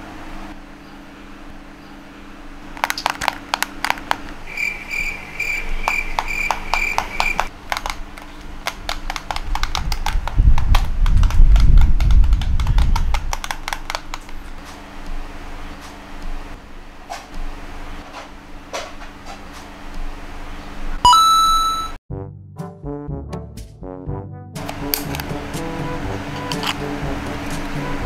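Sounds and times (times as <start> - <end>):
pulsing electronic beep: 21.1 - 22.0.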